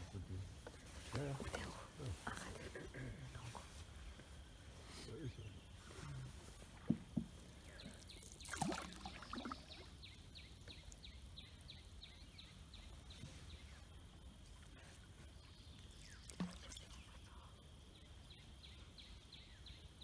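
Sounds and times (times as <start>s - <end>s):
soft knocks: 6.8s - 7.4s
water splashes: 7.7s - 10.0s, 16.0s - 17.2s.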